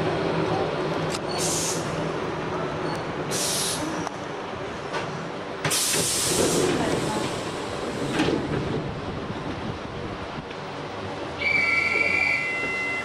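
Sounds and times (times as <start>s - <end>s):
train running rumble: 0.0s - 13.0s
hissing air bursts: 3.3s - 3.9s.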